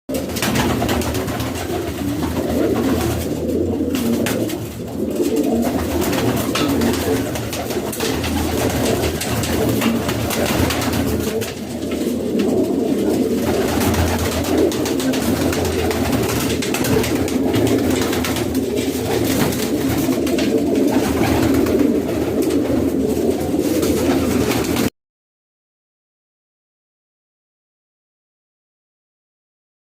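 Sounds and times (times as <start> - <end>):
pigeons cooing: 0.1 - 24.9.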